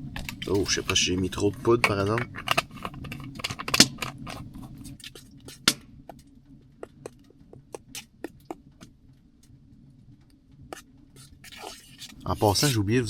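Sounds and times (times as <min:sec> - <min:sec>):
faint low hiss: 0:00.0 - 0:13.0
sharp clicks and snaps: 0:01.8 - 0:09.6.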